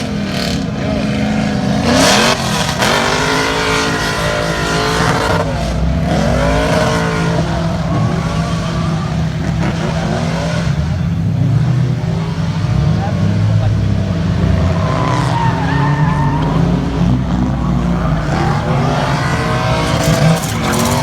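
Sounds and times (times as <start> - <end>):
car engine revving hard: 0.0 - 21.0
tyre noise: 14.7 - 21.0.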